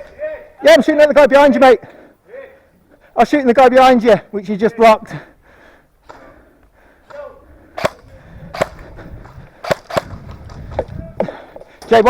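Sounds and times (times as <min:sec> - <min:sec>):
airsoft gun firing: 0:07.8 - 0:08.8, 0:09.6 - 0:10.4.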